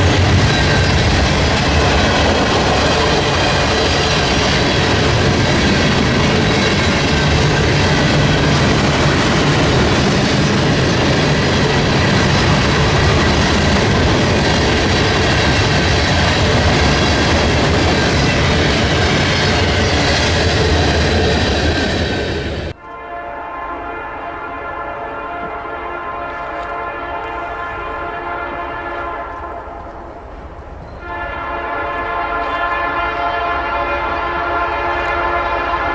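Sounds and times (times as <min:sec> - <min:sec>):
wheels clickety-clack: 0:00.0 - 0:22.7
freight train wheels rushing on rails: 0:00.0 - 0:35.9.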